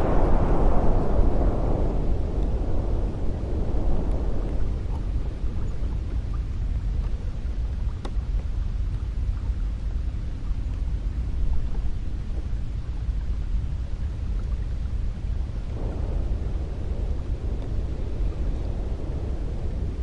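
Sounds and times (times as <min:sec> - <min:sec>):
cold wind blowing: 0:00.0 - 0:20.0
faint tick: 0:07.9 - 0:09.4, 0:10.7 - 0:10.9, 0:17.5 - 0:17.8.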